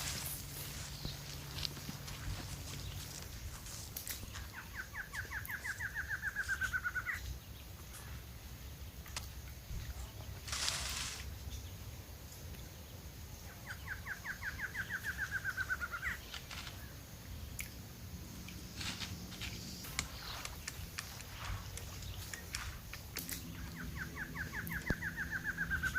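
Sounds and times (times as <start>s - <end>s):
rustling hiss: 0.0s - 4.6s, 6.3s - 13.4s, 15.4s - 25.9s
bird singing a trill: 4.4s - 7.7s, 13.4s - 17.6s, 21.8s - 25.9s
small clicks: 18.8s - 23.4s.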